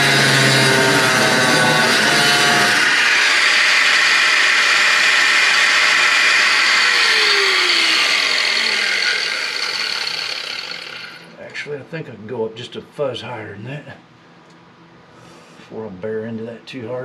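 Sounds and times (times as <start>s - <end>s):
angle grinder cutting steel: 0.0s - 11.3s.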